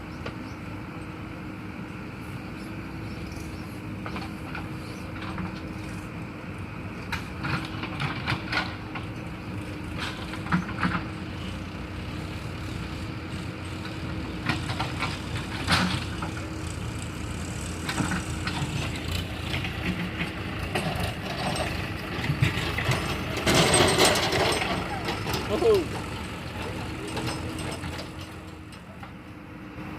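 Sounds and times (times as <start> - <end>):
heavy vehicle engine humming: 0.0 - 29.9
knocks and clanks: 17.8 - 28.8.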